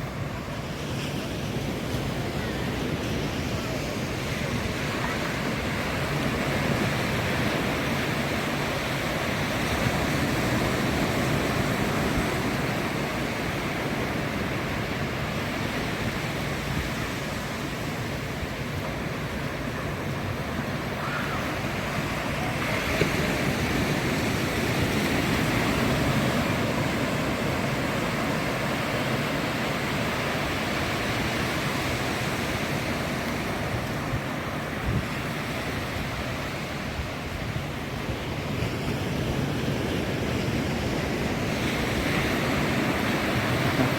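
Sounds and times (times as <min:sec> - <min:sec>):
ocean surf breaking on beach: 0:00.0 - 0:43.9.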